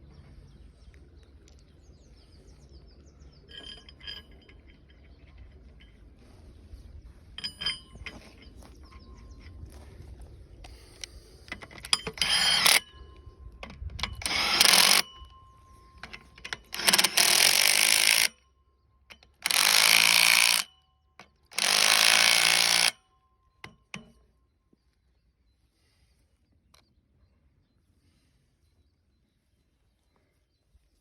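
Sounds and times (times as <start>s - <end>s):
power tool running in bursts: 12.2s - 12.8s, 14.2s - 15.0s, 16.7s - 18.3s, 19.4s - 20.7s, 21.5s - 23.0s.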